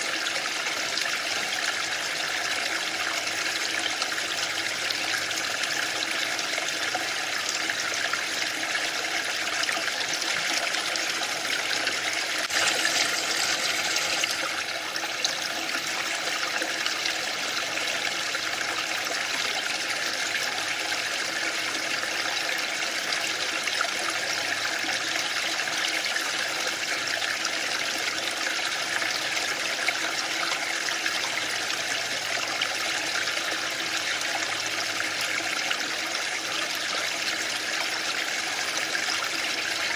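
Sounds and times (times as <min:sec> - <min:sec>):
waterfall rushing: 0:12.4 - 0:14.5.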